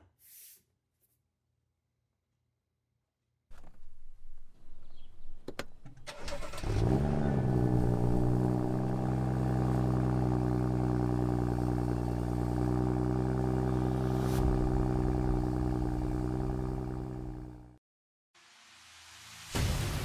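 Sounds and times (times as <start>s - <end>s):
car engine idling: 6.1s - 17.7s.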